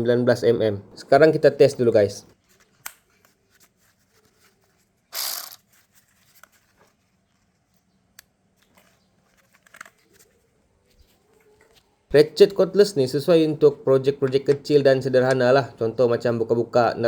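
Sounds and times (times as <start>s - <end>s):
cordless ratchet wrench motor: 5.1s - 5.6s.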